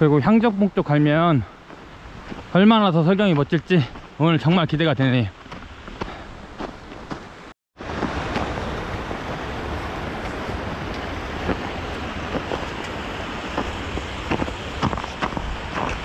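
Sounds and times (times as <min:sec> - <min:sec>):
wind buffeting microphone: 0:07.8 - 0:16.0.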